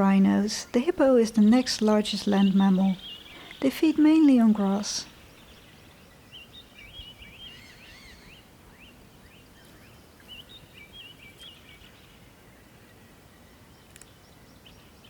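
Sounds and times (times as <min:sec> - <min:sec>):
birds chirping: 0:00.0 - 0:15.0
faint outdoor background noise: 0:00.0 - 0:15.0.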